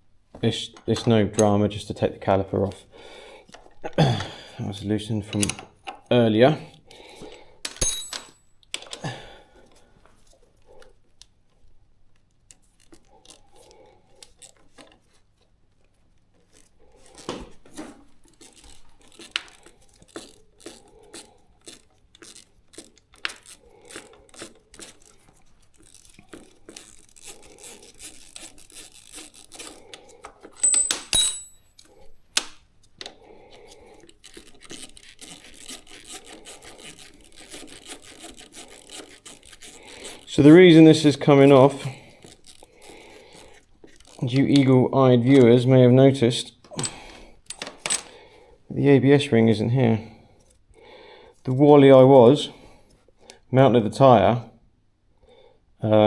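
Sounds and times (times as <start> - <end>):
wrench clinking against metal: 7.7 - 8.6, 30.5 - 31.9, 46.8 - 48.2
ringing metallic clank: 7.8 - 8.4, 30.6 - 31.8.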